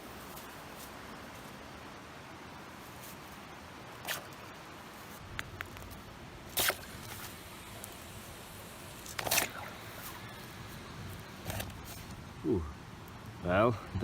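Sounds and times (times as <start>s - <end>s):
steady background hiss: 0.0s - 14.0s
hot stones hissing in water: 6.5s - 12.2s.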